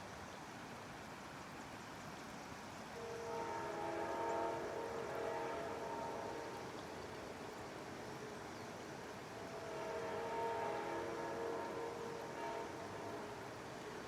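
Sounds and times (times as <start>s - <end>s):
train rumbling past: 2.9s - 14.0s
locomotive horn chord: 3.0s - 6.7s, 9.4s - 13.4s.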